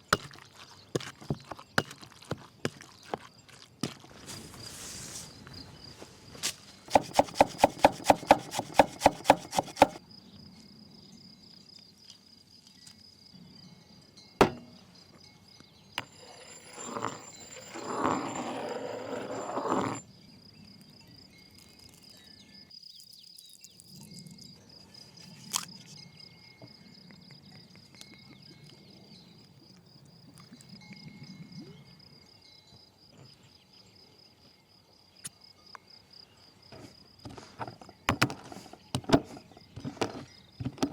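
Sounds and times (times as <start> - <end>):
sharp knocks: 6.9 - 10.0, 14.4 - 14.8
high-pitched insect trill: 9.4 - 36.7.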